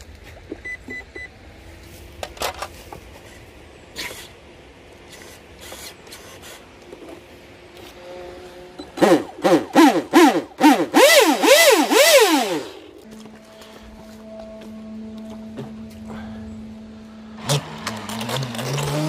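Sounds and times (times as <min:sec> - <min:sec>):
faint steady hum: 0:12.4 - 0:17.9.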